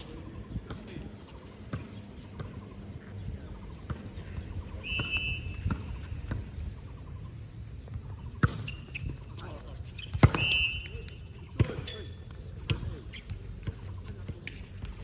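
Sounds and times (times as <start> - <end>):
ball bouncing on hard court: 1.6 - 2.7, 3.8 - 6.6, 7.8 - 9.2, 10.0 - 15.0
shoe squeak: 4.8 - 6.1, 8.2 - 14.2.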